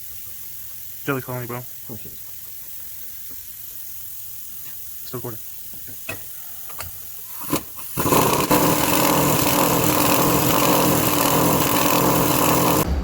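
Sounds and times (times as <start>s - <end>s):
engine running: 8.0s - 13.0s.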